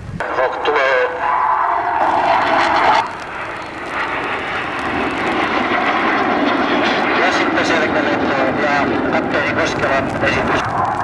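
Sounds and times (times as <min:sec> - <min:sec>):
aircraft engine rush: 0:00.0 - 0:11.0.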